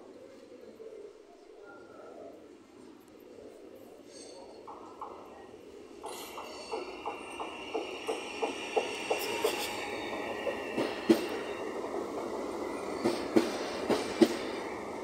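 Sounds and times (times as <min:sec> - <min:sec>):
train wheels clicking over track: 0:04.1 - 0:15.0.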